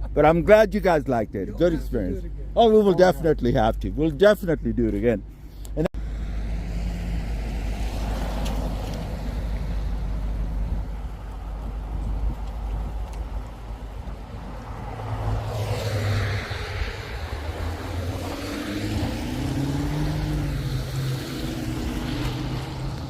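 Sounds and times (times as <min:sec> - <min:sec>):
low road rumble: 0:00.0 - 0:23.0
car engine accelerating: 0:06.0 - 0:23.0.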